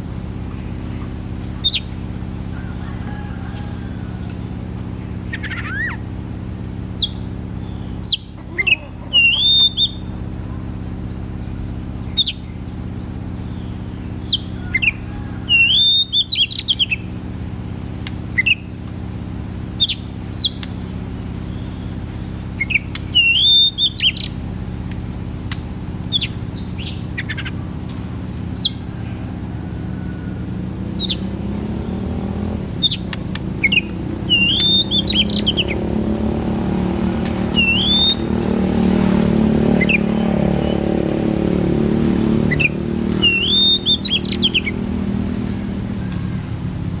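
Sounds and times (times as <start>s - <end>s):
steady low hum: 0.0s - 47.0s
bird singing whistled phrases: 6.9s - 12.6s, 13.5s - 17.0s, 22.6s - 24.4s, 31.0s - 31.3s, 32.8s - 35.8s, 37.5s - 38.3s, 42.5s - 44.8s.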